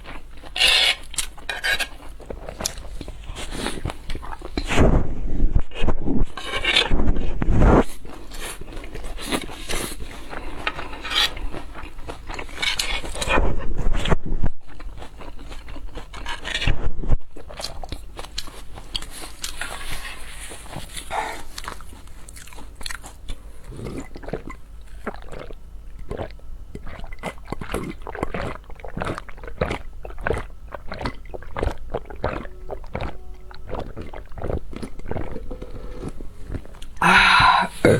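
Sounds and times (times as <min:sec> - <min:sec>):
crunching and chewing: 0:00.0 - 0:04.8, 0:06.2 - 0:37.0
rough scraping: 0:00.6 - 0:02.0, 0:05.8 - 0:08.6.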